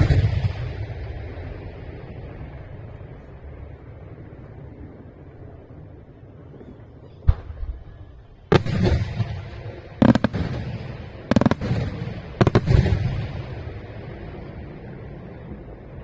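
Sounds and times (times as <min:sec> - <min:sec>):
low steady rumble: 0:00.0 - 0:16.0
rolling echo: 0:00.0 - 0:16.0
firework shells bursting: 0:07.3 - 0:14.3.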